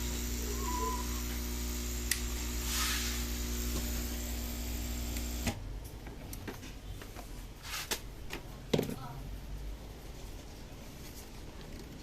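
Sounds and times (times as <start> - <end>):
appliance motor humming: 0.0 - 5.6.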